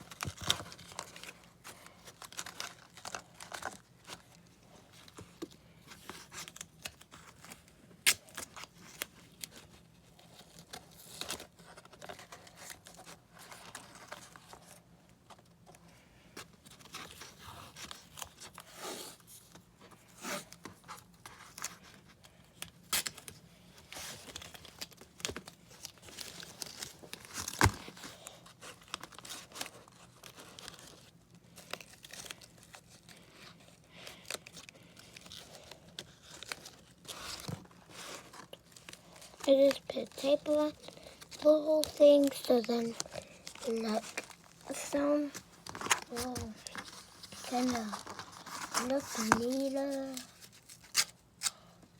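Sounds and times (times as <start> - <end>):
cardboard handling crinkles: 0.0 - 51.9.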